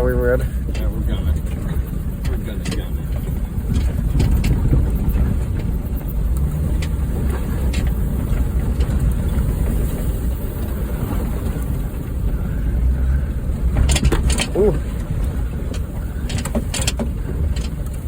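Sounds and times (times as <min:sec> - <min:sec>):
car engine rumbling: 0:00.0 - 0:18.0
clicks and knocks: 0:13.8 - 0:14.8.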